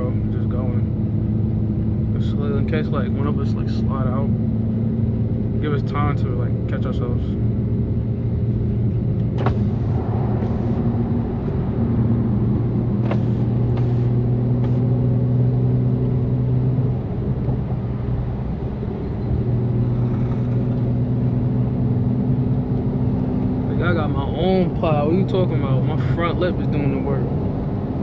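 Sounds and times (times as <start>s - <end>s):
car engine exhaust drone: 0.0s - 28.0s.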